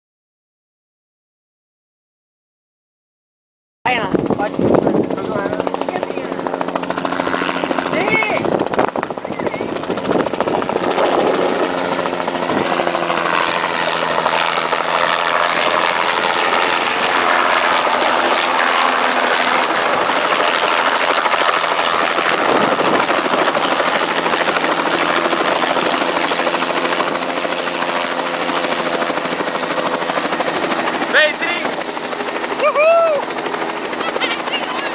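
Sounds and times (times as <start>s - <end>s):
helicopter engine drone: 3.9s - 34.9s
helicopter rotor beat: 3.9s - 34.9s.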